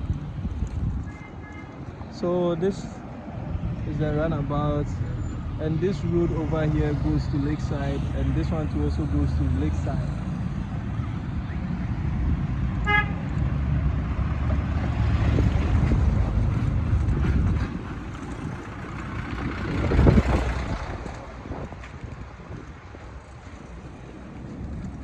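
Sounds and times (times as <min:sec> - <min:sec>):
traffic rumble: 0:00.0 - 0:25.0
vehicle passing close: 0:03.5 - 0:25.0
car horn toot: 0:12.8 - 0:13.2.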